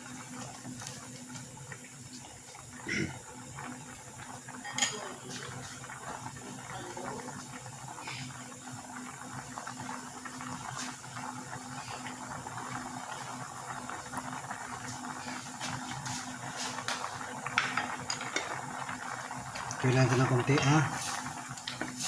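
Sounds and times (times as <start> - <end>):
pot bubbling at a boil: 0.0 - 22.0.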